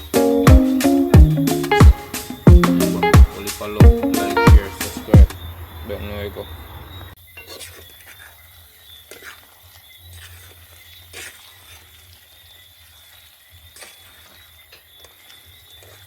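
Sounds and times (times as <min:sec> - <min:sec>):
night insects trilling: 0:03.3 - 0:07.2.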